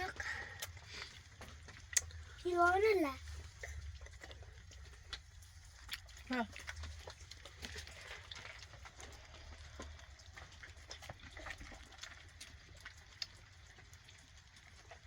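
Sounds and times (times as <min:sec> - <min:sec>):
light rain falling: 0:00.0 - 0:15.0.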